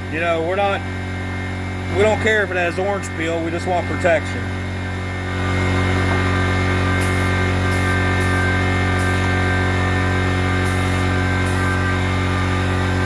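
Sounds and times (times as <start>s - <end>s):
air compressor humming: 0.0s - 13.0s
spray gun hissing: 5.6s - 13.0s.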